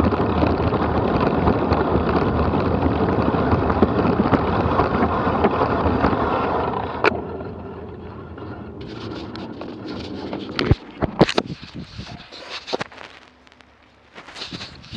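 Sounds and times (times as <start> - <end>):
rolling trail noise: 0.0 - 14.9
sharp clicks and knocks: 8.4 - 14.9
wind rushing on microphone: 8.8 - 12.4, 14.4 - 14.9.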